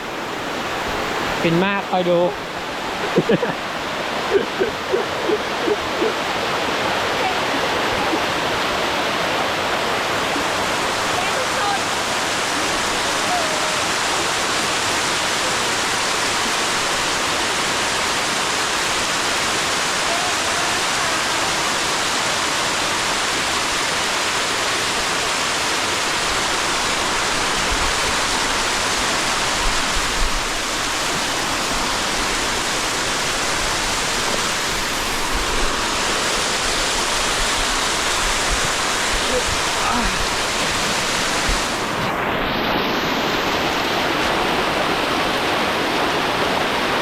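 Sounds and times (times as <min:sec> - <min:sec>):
waterfall pouring: 0:10.4 - 0:41.9.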